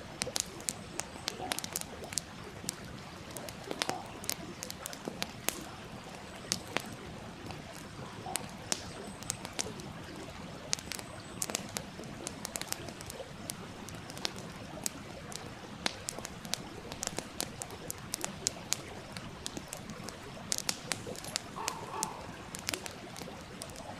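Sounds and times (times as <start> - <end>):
campfire crackling: 0.0 - 23.9
stream running: 0.0 - 23.9.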